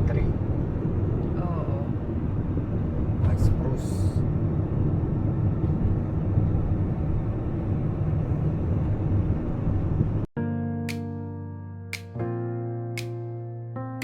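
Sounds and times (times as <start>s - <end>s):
car driving road noise: 0.0s - 10.3s
soft instrumental music: 10.4s - 14.0s.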